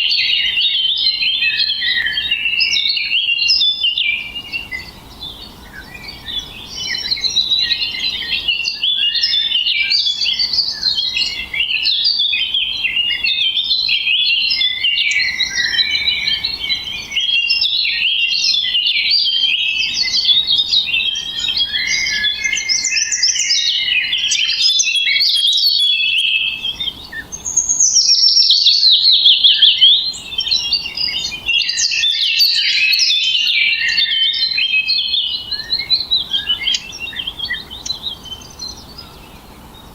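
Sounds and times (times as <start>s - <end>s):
songbirds chirping and warbling: 0.0s - 39.9s
quick repeated high bird notes: 21.2s - 26.7s.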